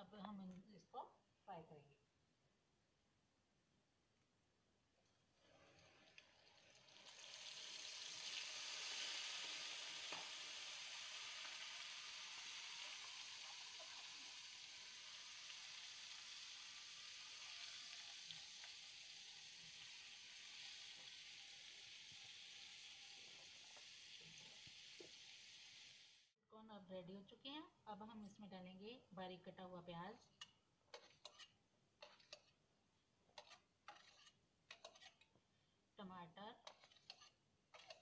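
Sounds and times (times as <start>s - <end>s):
corn sizzling in hot oil: 5.4s - 26.4s.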